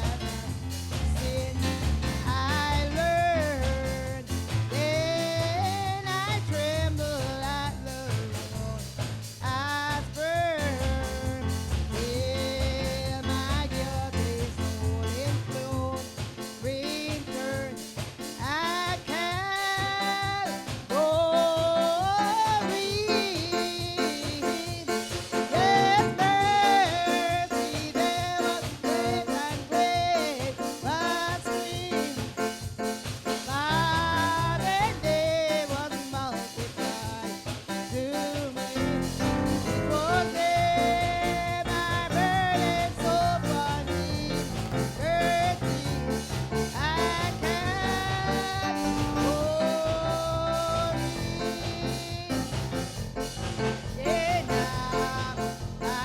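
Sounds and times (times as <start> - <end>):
bass part: 0.0 - 15.9, 25.5 - 27.7, 33.5 - 35.5, 38.8 - 56.0
band playing gospel music: 0.0 - 56.0.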